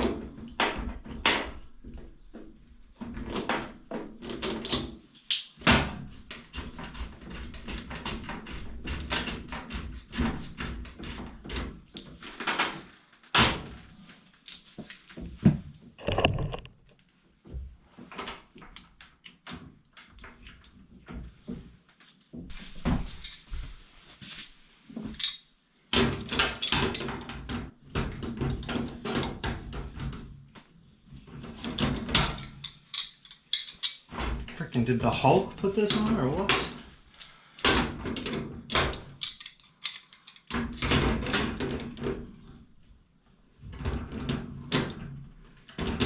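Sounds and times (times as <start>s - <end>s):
tools knocking and scraping on fittings: 6.0s - 12.8s, 16.0s - 17.1s, 31.1s - 34.6s, 35.3s - 42.2s
loud thumps: 16.0s - 16.9s.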